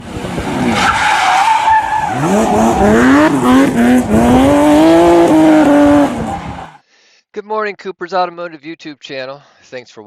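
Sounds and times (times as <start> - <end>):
car engine revving: 1.8 - 6.8.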